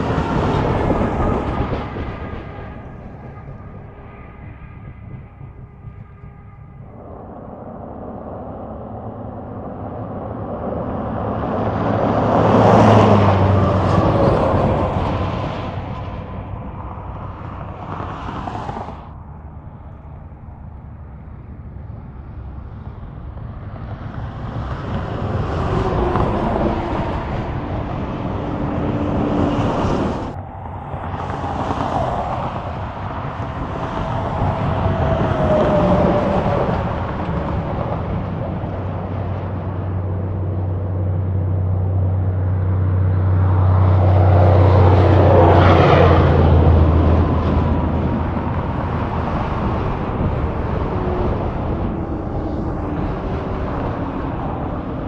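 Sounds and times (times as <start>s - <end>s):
heavy truck engine drone: 0.0s - 55.0s
highway traffic passing: 0.0s - 55.0s.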